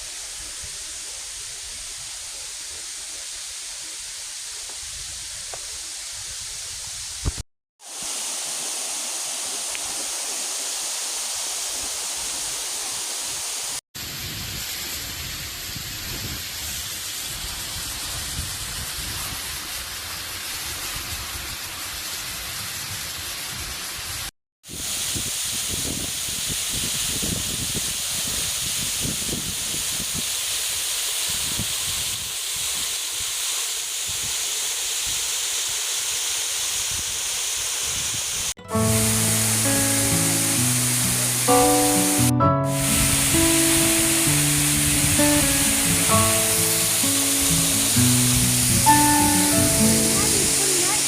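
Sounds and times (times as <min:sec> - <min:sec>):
waterfall roaring: 0:38.6 - 0:51.0.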